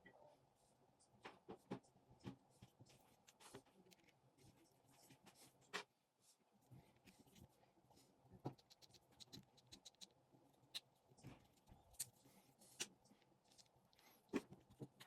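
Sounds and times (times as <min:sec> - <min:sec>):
clicks taps and scratching: 0:08.3 - 0:15.0.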